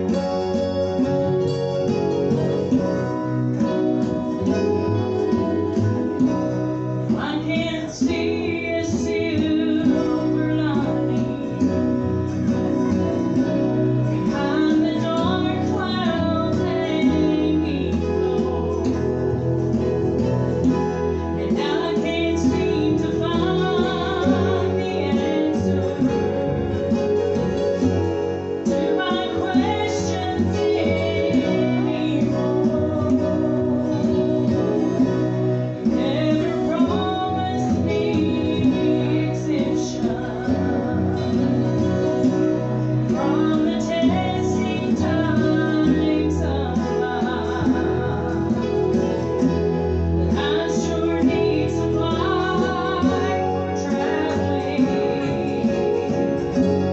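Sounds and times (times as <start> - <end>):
acoustic guitar playing: 0.0 - 56.9
people singing: 13.3 - 20.7, 21.4 - 26.8, 28.6 - 49.6, 50.2 - 56.9.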